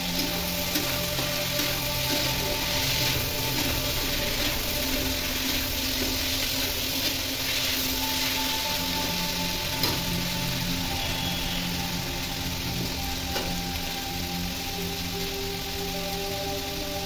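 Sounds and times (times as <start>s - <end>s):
background music: 0.0s - 17.0s
food sizzling in pan: 0.0s - 17.0s.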